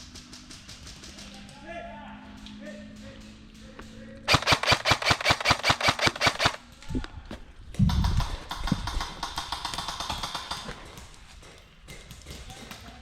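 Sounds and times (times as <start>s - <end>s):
airsoft gun rapid shots: 4.3s - 6.6s, 7.9s - 11.0s.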